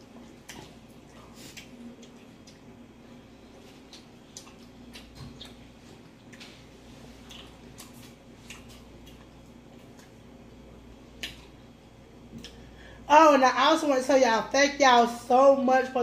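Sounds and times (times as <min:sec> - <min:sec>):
wet chewing of soft food: 0:00.0 - 0:12.7
faint steady hum: 0:00.0 - 0:16.0.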